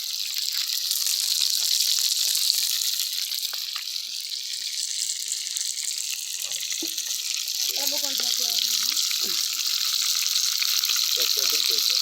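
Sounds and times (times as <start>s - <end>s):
wood fire hissing and crackling: 0.0s - 12.0s.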